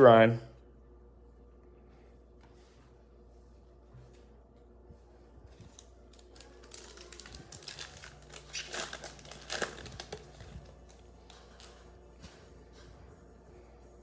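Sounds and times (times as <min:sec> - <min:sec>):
cards and plastic wrapper crinkling: 0:05.6 - 0:11.9.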